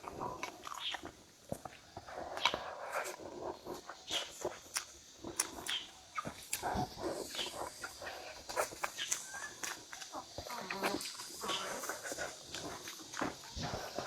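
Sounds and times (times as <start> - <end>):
chewing and crunching food: 0.0 - 14.0
wet mouth clicks: 4.1 - 10.1.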